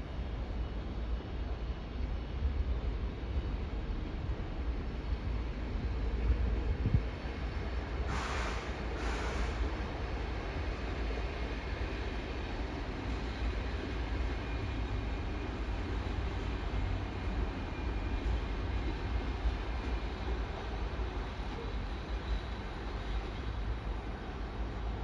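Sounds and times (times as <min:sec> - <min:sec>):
electric train rumbling: 0:00.0 - 0:25.0
short bursts of hiss: 0:08.1 - 0:09.7.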